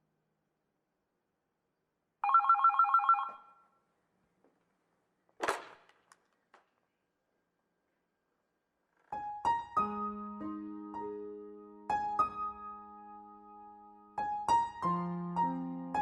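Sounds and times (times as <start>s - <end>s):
electronic telephone ringing: 2.2s - 3.6s.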